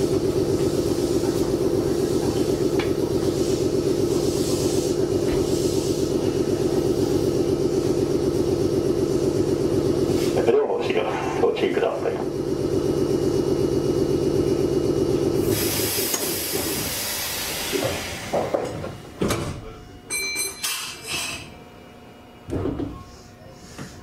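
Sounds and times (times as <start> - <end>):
air hiss: 15.4 - 18.4.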